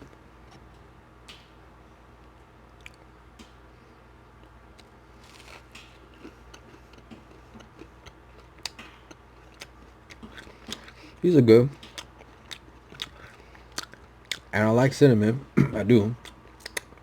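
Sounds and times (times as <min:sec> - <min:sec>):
person chewing: 0:02.8 - 0:03.1, 0:04.8 - 0:14.5, 0:16.2 - 0:17.0.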